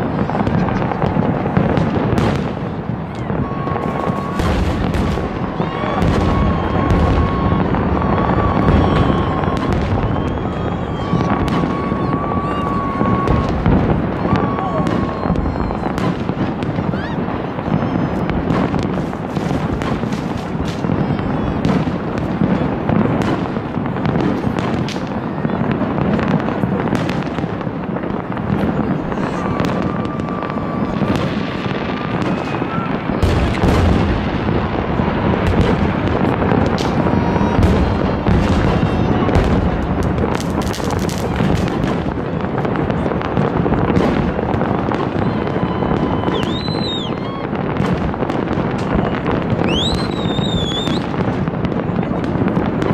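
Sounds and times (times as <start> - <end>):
fireworks bursts and crackling: 0.0 - 52.9.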